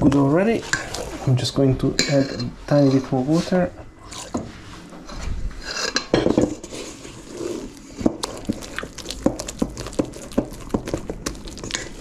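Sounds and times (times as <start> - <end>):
spoon mixing batter in a bowl: 5.7 - 12.0.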